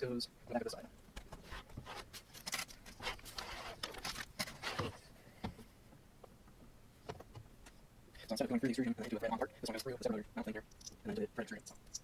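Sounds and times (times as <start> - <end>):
scraping and rustling: 1.3 - 5.1
clicks and knocks of parts: 2.2 - 3.0.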